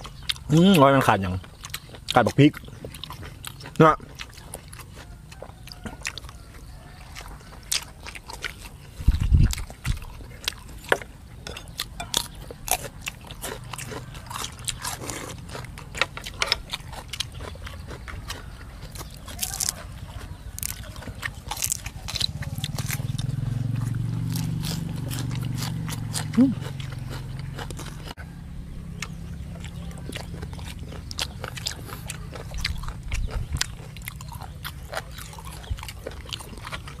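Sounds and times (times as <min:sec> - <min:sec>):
chewing and mouth smacks: 0:00.0 - 0:28.2, 0:28.9 - 0:37.0
low hum: 0:21.7 - 0:34.7.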